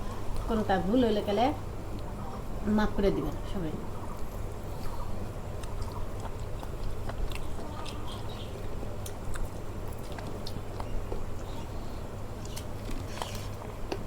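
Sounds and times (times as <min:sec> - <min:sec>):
person chewing food: 0:04.2 - 0:14.0.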